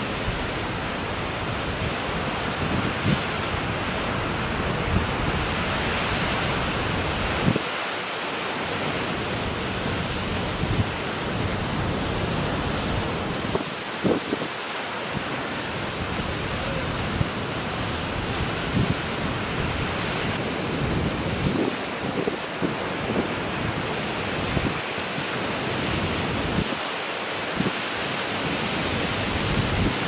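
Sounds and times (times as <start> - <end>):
wind buffeting microphone: 0.0 - 7.7, 9.3 - 24.9
ocean surf washing: 0.0 - 30.0.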